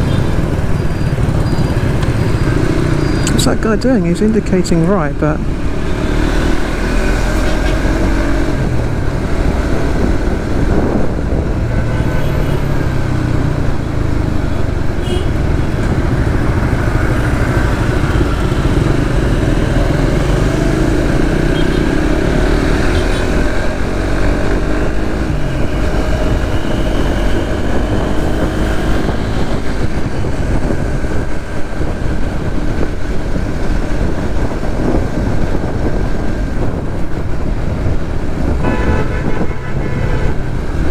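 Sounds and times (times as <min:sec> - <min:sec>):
motorcycle engine running: 0:00.0 - 0:40.9
road noise: 0:00.0 - 0:40.9
wind rushing: 0:00.0 - 0:40.9.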